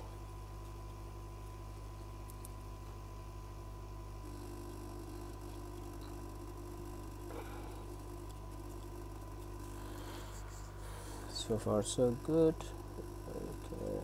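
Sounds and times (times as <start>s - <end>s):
electrical hum: 0.0s - 14.0s
high-pitched whine and hiss: 4.2s - 14.0s.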